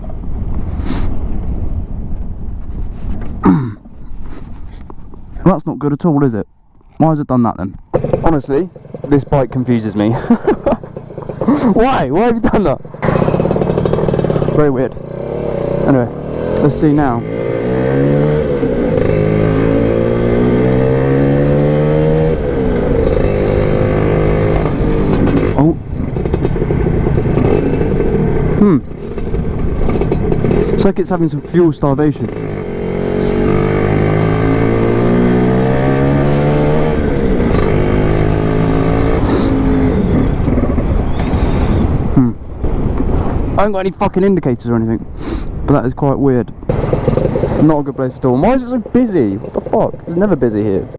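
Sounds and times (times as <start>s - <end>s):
scooter engine pulling away: 7.9s - 12.1s, 12.8s - 30.8s, 32.3s - 42.0s, 46.7s - 47.7s.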